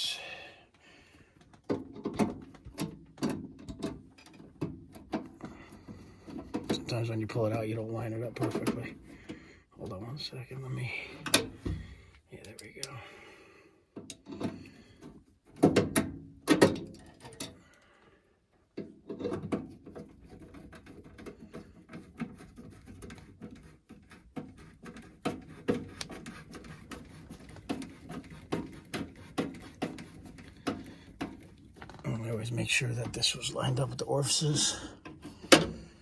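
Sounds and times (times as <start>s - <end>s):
metal clanks and rattles: 14.1s - 17.6s.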